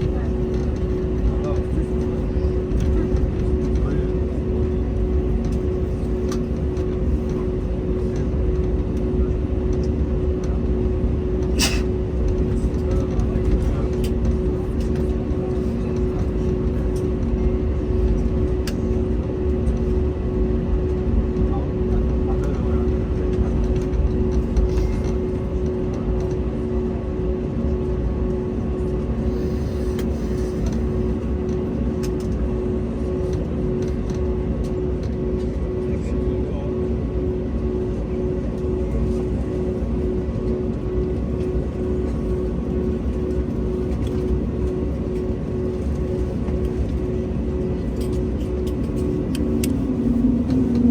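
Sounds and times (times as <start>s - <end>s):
airplane cabin hum: 0.0s - 50.9s
vehicle interior rumble: 48.6s - 50.9s.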